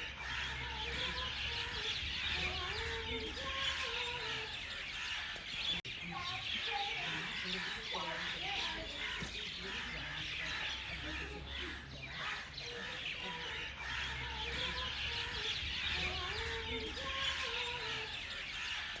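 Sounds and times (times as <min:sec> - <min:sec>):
birds chirping: 0:00.0 - 0:19.0
low bending bird calls: 0:00.0 - 0:19.0.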